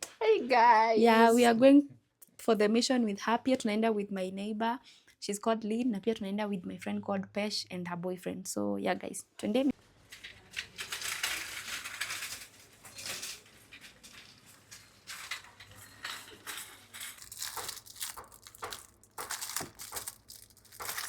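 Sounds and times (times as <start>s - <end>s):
plastic packaging crinkling: 10.1s - 21.0s.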